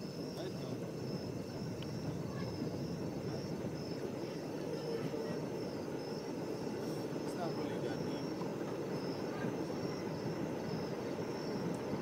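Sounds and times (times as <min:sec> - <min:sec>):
distant train rumbling: 0:00.0 - 0:12.0.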